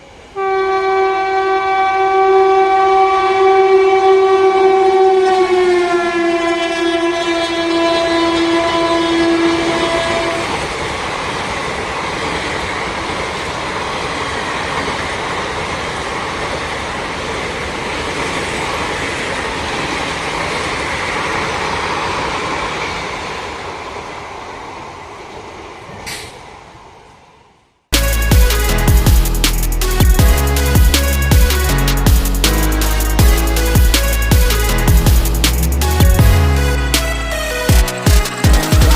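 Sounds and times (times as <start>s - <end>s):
train rumbling over rail bridge: 0.0s - 38.9s
train horn: 0.2s - 10.7s.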